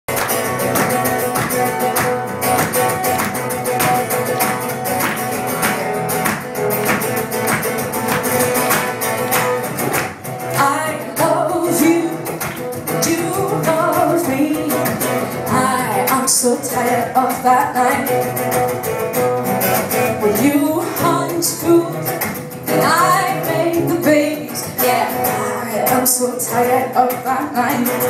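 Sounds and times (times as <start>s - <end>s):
guitar strummed hard: 0.1s - 28.0s
woman singing: 10.5s - 18.4s, 20.2s - 28.0s.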